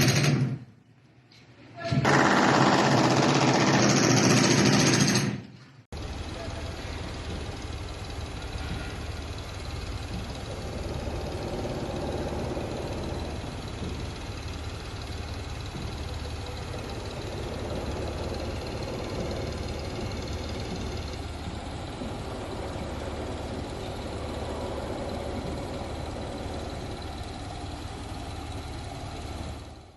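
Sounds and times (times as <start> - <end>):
diesel engine rumbling: 6.0 - 29.9.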